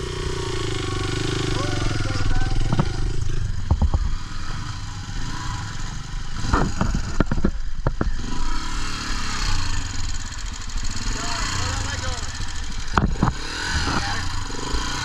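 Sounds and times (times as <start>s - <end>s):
motorcycle engine running: 0.0s - 15.0s
motorcycle knocking over rough ground: 2.1s - 4.6s, 6.3s - 8.3s, 12.8s - 14.2s.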